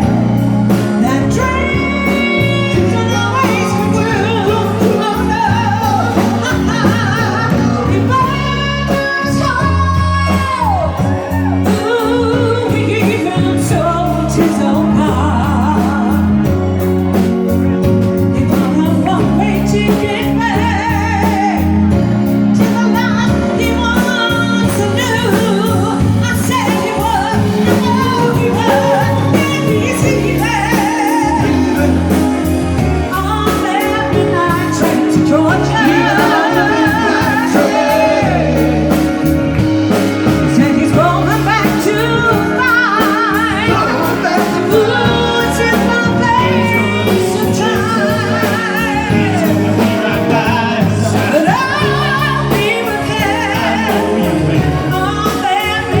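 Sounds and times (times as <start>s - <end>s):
instrumental backing with beat: 0.0s - 56.0s
person singing with vibrato: 18.4s - 56.0s.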